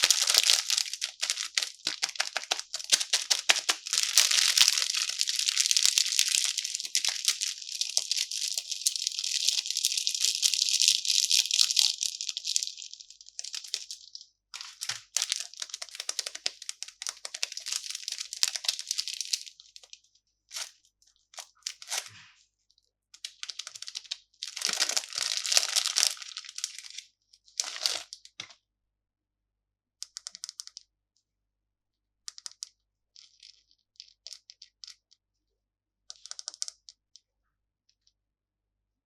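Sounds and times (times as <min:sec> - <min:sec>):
candy wrapper crinkling and tearing: 0:00.0 - 0:20.8, 0:21.4 - 0:22.1, 0:23.2 - 0:28.4
wrapper crackles: 0:00.0 - 0:20.8, 0:23.2 - 0:27.0, 0:27.6 - 0:28.2.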